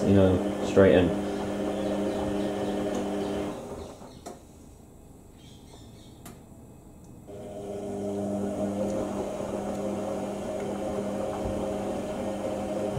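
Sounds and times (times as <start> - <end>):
washing machine drum humming: 0.0 - 4.2, 7.3 - 12.9.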